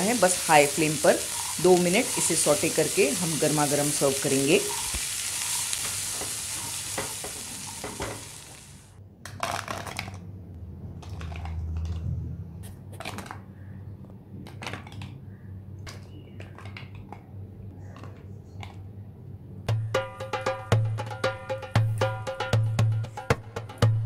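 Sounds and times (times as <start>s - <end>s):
chickpeas sizzling in a pan: 0.0s - 8.9s.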